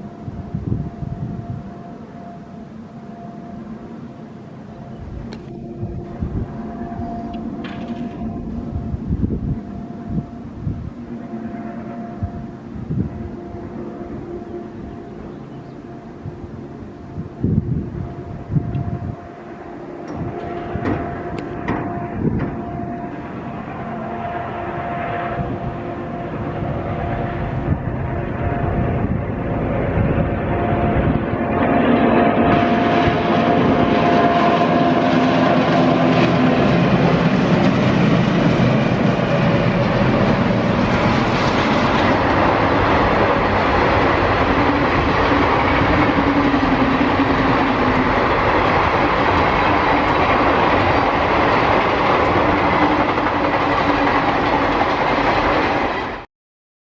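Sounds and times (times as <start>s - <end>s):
train wheel and rail noise: 0.0s - 56.3s
wheels clicking over rail joints: 41.8s - 56.2s.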